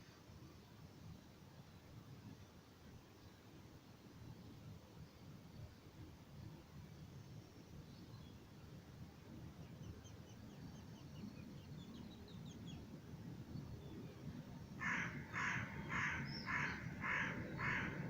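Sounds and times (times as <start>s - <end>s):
small birds twittering: 9.6s - 12.9s, 13.6s - 18.0s
crow cawing: 14.8s - 18.0s.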